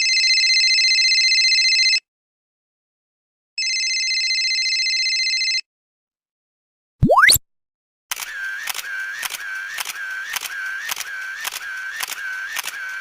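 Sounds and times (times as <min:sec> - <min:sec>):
telephone ringing: 0:00.0 - 0:02.0, 0:03.6 - 0:05.6.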